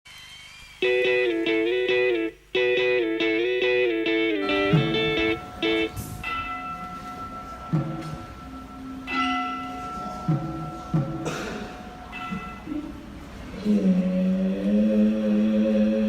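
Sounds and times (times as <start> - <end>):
bells ringing: 0.8 - 13.6
low thumps: 4.4 - 8.7, 10.2 - 11.4.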